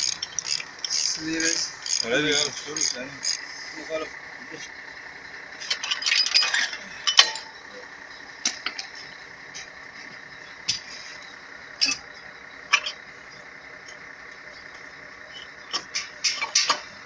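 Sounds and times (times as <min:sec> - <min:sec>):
metal clatter: 0:05.6 - 0:07.7, 0:15.3 - 0:17.0
metal clinking: 0:05.7 - 0:07.7.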